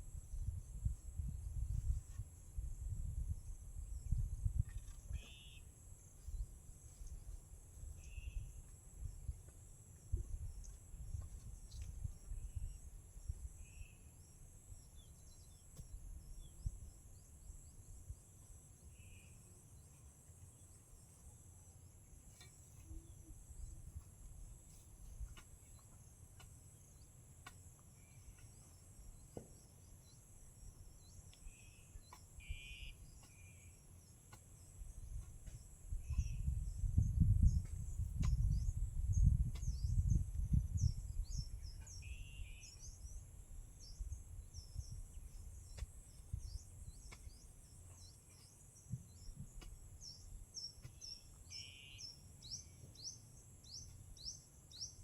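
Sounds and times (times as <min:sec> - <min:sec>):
bird chirp: 0:04.0 - 0:09.4, 0:27.9 - 0:55.0
insects chirring: 0:27.9 - 0:55.0.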